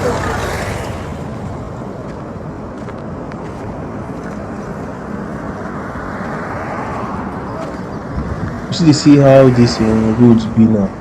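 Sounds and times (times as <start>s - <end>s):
low rumble of vehicle noise: 0.0s - 11.0s.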